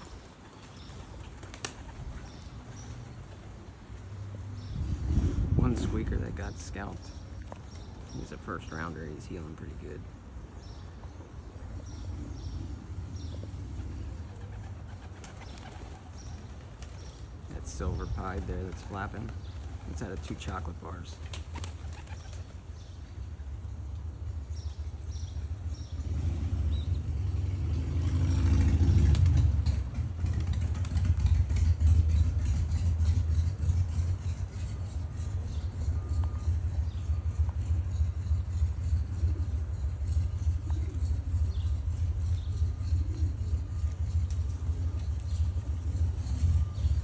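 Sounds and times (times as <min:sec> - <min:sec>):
vehicle engine passing: 0:25.6 - 0:47.0
bird chirps: 0:33.3 - 0:47.0.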